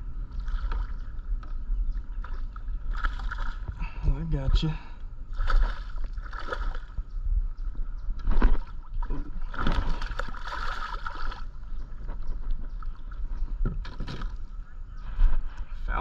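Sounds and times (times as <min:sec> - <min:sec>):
wind rumble on microphone: 0:00.0 - 0:16.0
water splashing: 0:02.2 - 0:03.7, 0:05.3 - 0:06.9, 0:08.2 - 0:11.6.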